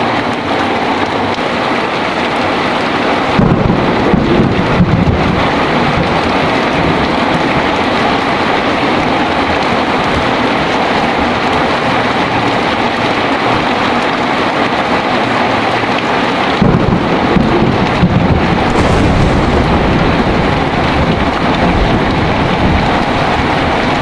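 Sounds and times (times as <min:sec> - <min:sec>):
heavy rain pouring: 0:00.0 - 0:24.0
deep thunder rumble: 0:16.6 - 0:24.0.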